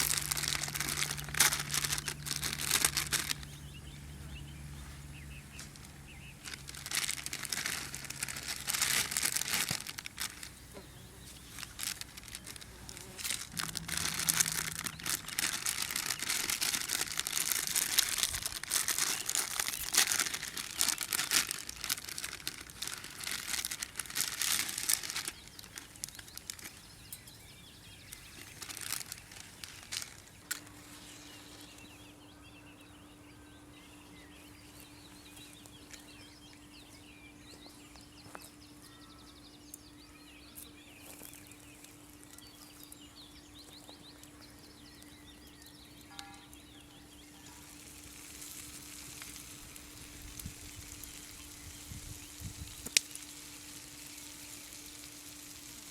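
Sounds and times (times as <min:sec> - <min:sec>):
crinkling and rustling: 0:00.0 - 0:03.7, 0:05.4 - 0:31.8, 0:47.3 - 0:55.9
faint bird chirps: 0:25.2 - 0:47.9
food frying sizzle: 0:47.4 - 0:55.9.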